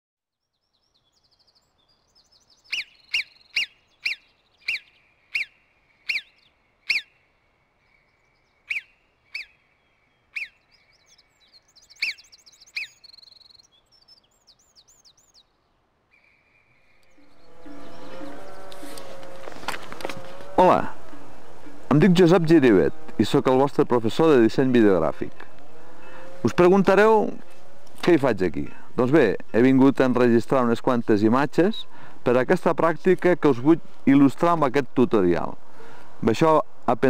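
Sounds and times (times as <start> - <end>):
quick bird chirps and trills: 0.4 - 7.3, 7.9 - 15.6
sharp bird call notes: 2.6 - 7.3, 8.0 - 13.8.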